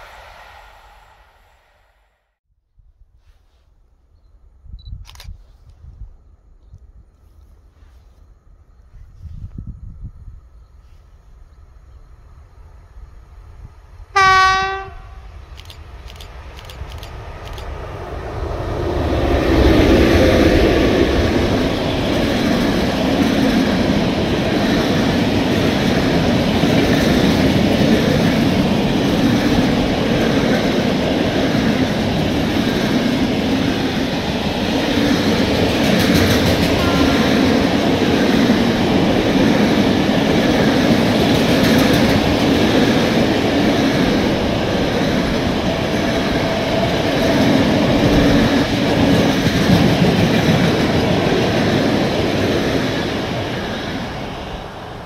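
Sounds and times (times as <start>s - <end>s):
locomotive horn blast: 14.2s - 15.3s, 36.6s - 38.0s
freight wagons rumbling on rails: 16.5s - 55.0s
locomotive rumble: 16.6s - 55.0s.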